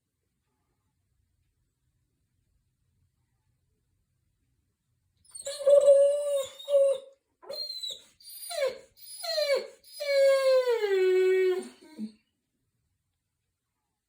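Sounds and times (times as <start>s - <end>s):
dog howling: 5.3s - 12.1s.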